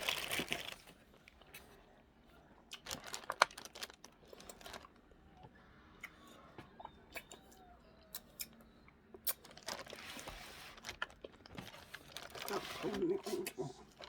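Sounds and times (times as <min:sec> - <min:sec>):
plastic bag crinkling: 0:00.0 - 0:01.2, 0:02.8 - 0:05.0, 0:09.4 - 0:14.0
small clicks and crackles: 0:02.8 - 0:05.0, 0:09.2 - 0:13.1.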